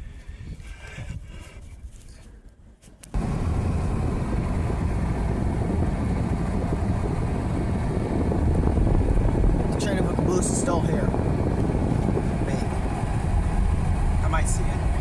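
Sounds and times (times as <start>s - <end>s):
moving vehicle rumble: 3.1s - 15.0s.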